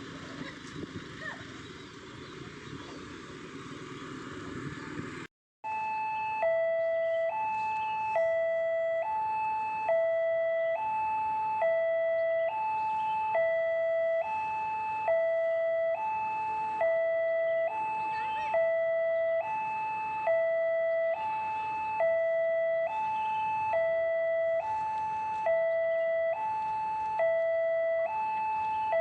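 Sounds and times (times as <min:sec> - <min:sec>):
level crossing two-tone warning chime: 0:05.7 - 0:10.8.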